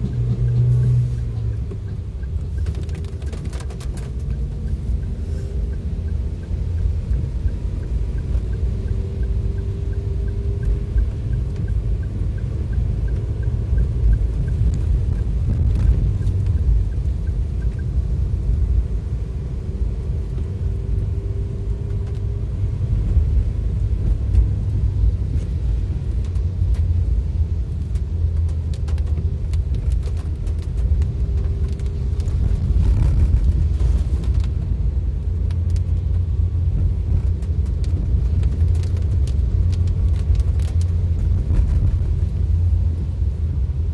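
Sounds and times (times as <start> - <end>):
faint regular ticking: 0.0 - 18.2
vehicle driving in heavy rain: 0.0 - 43.9.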